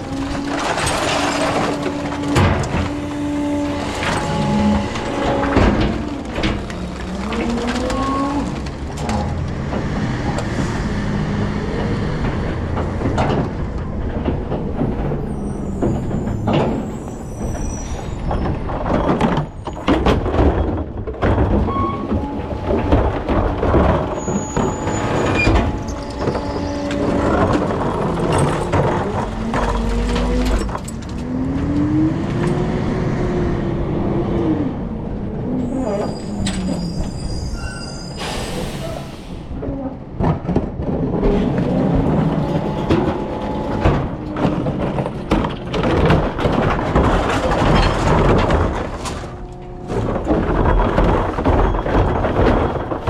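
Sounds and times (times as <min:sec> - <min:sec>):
metal clanks and knocks: 0:00.0 - 0:32.6, 0:40.1 - 0:53.0
brief high squeals: 0:35.7 - 0:39.4.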